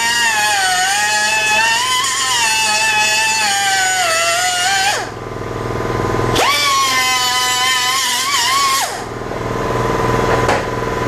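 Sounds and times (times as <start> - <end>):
power cutting tool whining: 0.0 - 5.2, 6.3 - 9.1.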